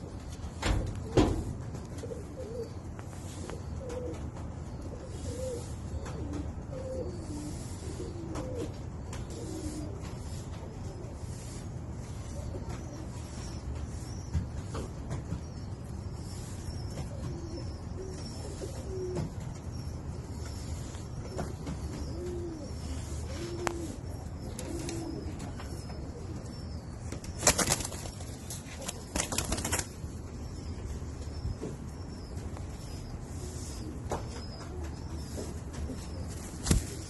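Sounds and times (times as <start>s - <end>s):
pigeons cooing: 0.0s - 37.0s
wings flapping: 27.2s - 30.0s, 36.4s - 37.0s.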